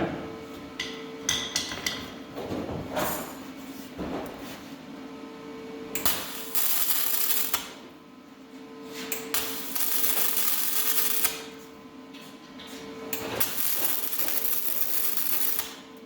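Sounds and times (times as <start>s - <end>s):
welder arc crackling: 6.0s - 7.8s, 9.3s - 11.5s, 13.2s - 15.8s.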